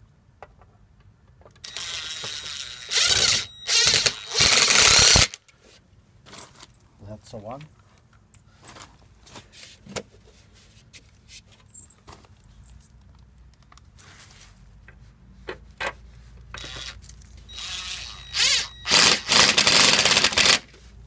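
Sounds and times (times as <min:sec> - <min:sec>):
impact driver driving screw: 0:01.7 - 0:05.4, 0:16.6 - 0:20.7.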